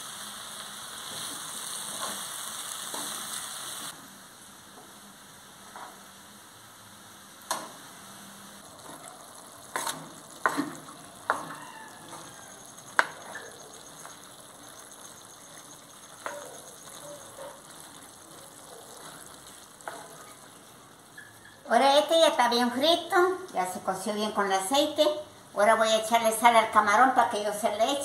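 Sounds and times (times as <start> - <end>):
vegetables sizzling in oil: 0.0 - 4.0, 7.4 - 21.6
wooden spoon knocking on pan: 9.8 - 14.2.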